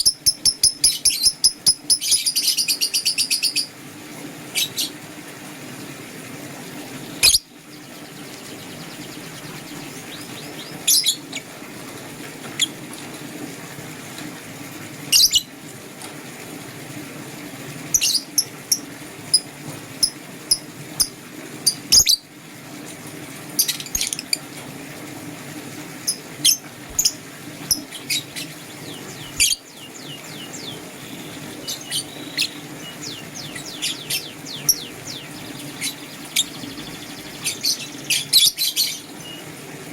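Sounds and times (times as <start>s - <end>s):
lovebirds chirping: 7.0s - 11.4s, 26.1s - 39.5s.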